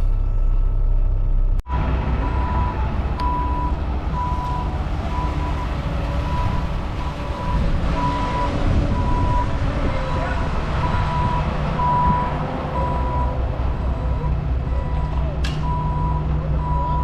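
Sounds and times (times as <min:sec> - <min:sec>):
diesel engine rumble: 0:00.0 - 0:17.0
truck reversing alarm beeps: 0:01.7 - 0:17.0.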